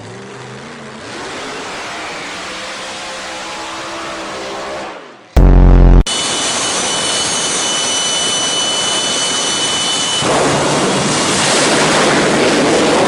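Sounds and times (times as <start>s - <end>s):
race car engine roaring: 0.8s - 6.1s
high thin whine: 5.4s - 6.1s.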